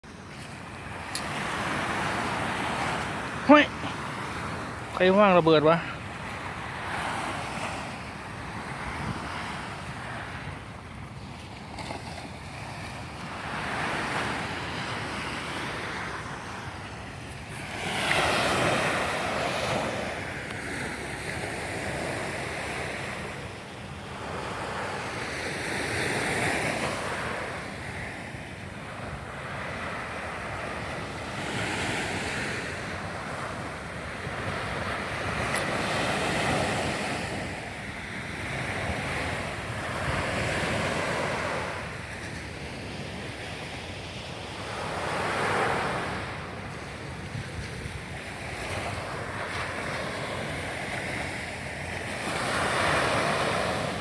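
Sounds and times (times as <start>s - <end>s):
sea waves breaking: 0.0s - 54.0s
wind buffeting microphone: 46.1s - 49.3s.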